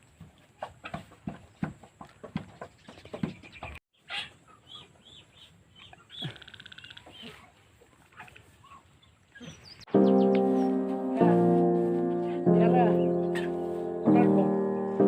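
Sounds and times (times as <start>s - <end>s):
birds chirping and calling: 1.4s - 7.5s, 8.1s - 10.9s, 12.2s - 15.0s
bird trill: 9.4s - 10.8s
piano music: 9.9s - 15.0s.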